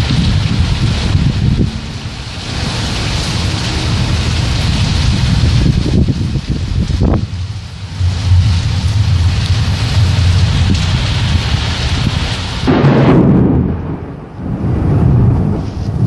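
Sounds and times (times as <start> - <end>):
rain hiss: 0.0 - 16.0
thunder rumbling: 0.0 - 16.0.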